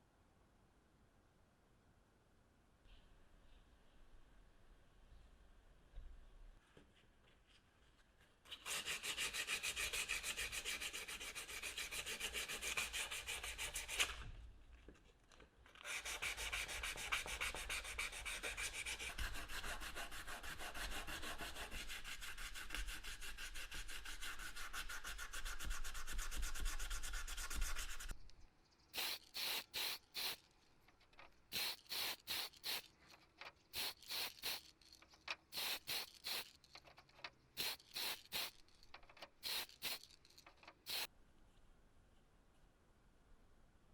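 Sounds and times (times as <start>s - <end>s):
sanding strokes: 8.6s - 14.1s, 15.9s - 28.1s
short rubbing bursts: 29.0s - 30.4s, 31.5s - 37.0s, 37.6s - 41.1s.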